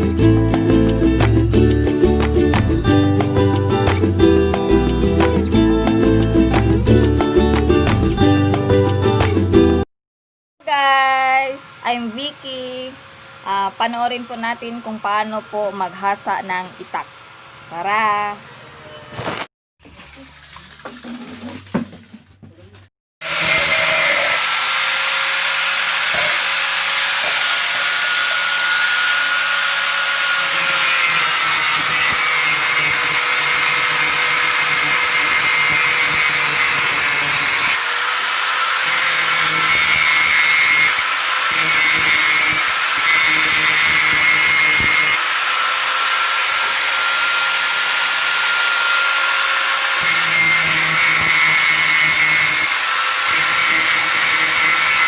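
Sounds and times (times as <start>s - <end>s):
electric grinder sharpening knife: 23.2s - 55.0s.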